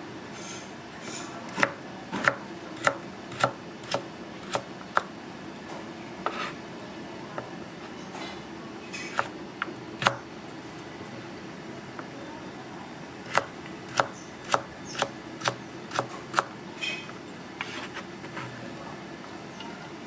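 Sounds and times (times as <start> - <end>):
kitchen background noise: 0.0 - 20.0
knife chopping on cutting board: 6.2 - 6.6.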